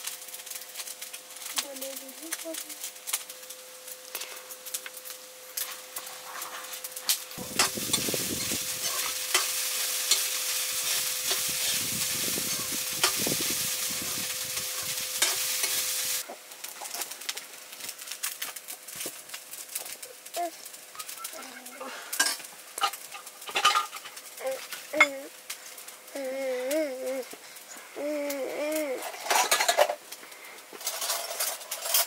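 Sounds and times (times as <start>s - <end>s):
food sizzling in a wok: 0.0s - 32.0s
ladle scraping a wok: 7.4s - 16.2s, 30.8s - 32.0s.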